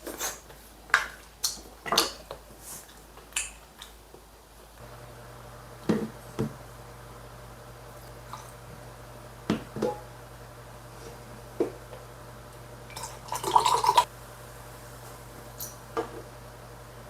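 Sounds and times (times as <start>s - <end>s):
drink pouring into glass: 12.9s - 14.1s.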